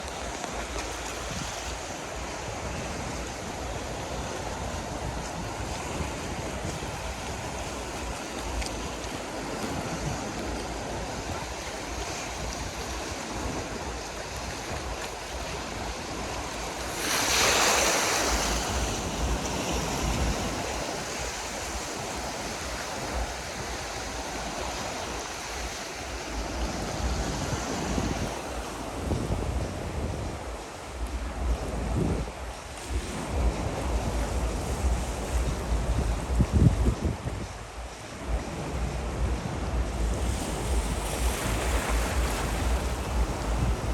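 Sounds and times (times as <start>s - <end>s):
surf washing onto shore: 0.0s - 43.9s
wave breaking: 0.0s - 43.9s
wind rumble on microphone: 0.0s - 43.9s.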